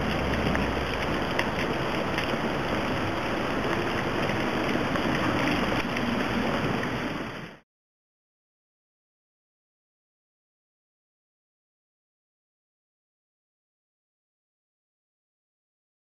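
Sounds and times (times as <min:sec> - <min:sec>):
rain on wet pavement: 0:00.0 - 0:07.6.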